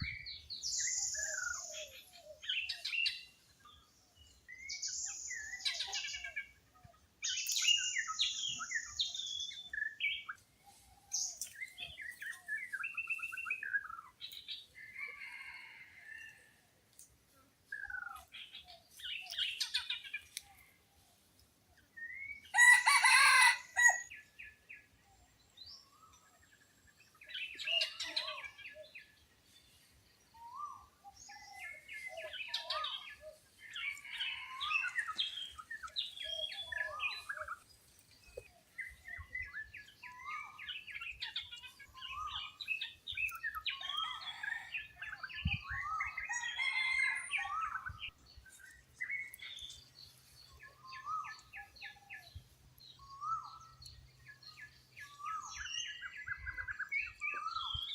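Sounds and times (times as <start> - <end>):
rooster crowing: 15.0 - 16.5, 22.5 - 24.1, 46.3 - 47.8.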